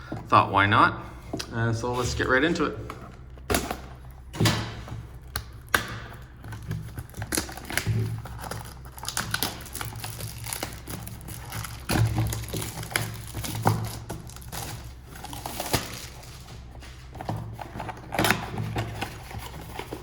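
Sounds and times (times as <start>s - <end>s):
cardboard being handled: 0.0s - 20.0s
plastic wrap crinkling: 5.1s - 20.0s.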